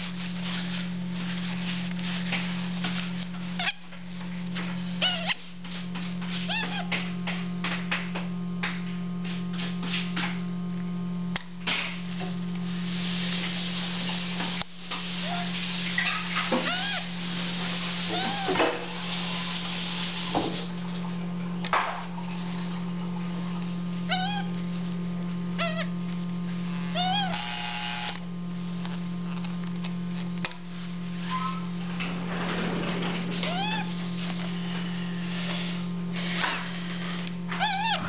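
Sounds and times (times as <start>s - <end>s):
parrot chicks squeaking: 3.6s - 3.9s, 5.0s - 5.4s, 6.4s - 7.0s, 15.2s - 17.1s, 18.1s - 18.8s, 24.1s - 24.6s, 25.6s - 26.0s, 26.7s - 28.2s, 33.4s - 33.9s, 37.5s - 38.0s.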